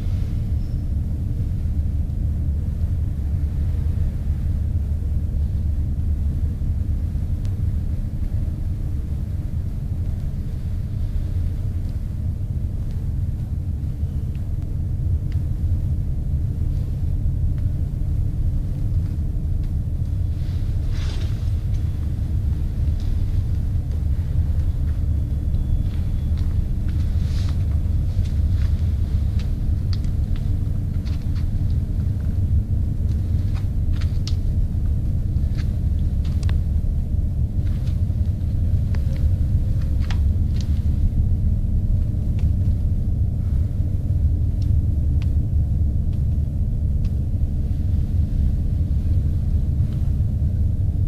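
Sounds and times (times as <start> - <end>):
dense low rumble: 0.0 - 51.0.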